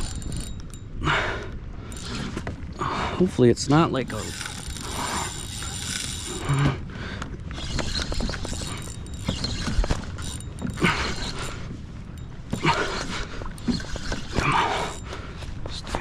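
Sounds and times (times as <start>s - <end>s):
fishing reel drag clicking: 0.0s - 0.8s, 4.0s - 6.6s, 7.5s - 11.7s.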